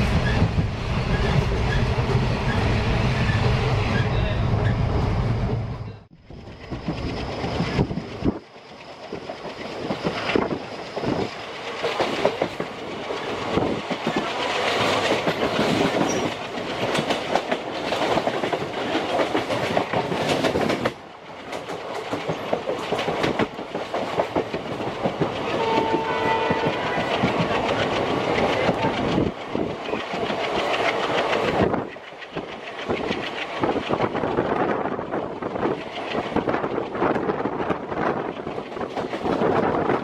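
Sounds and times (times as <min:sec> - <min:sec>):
train wheels clattering over rail joints: 0:06.5 - 0:40.0
train horn: 0:25.5 - 0:27.3.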